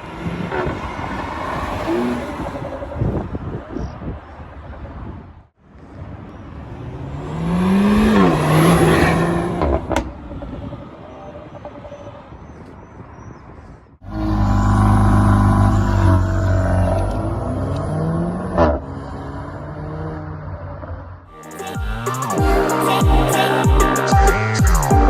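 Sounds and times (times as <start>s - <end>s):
car engine revving: 0.0s - 3.4s, 6.6s - 11.2s, 14.0s - 21.2s
exhaust pop: 9.4s - 10.6s.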